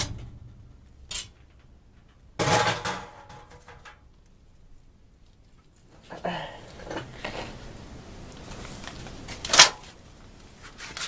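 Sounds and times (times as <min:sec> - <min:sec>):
rattling clatter of metal parts: 0:00.0 - 0:04.0.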